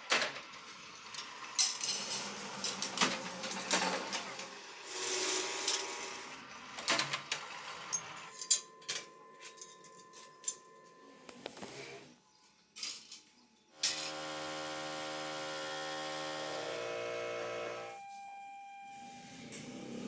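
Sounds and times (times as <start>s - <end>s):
metallic clicks and clinks: 7.9s - 10.6s
faint machine whine: 7.9s - 12.5s, 13.7s - 20.0s
tool noise: 13.8s - 17.8s.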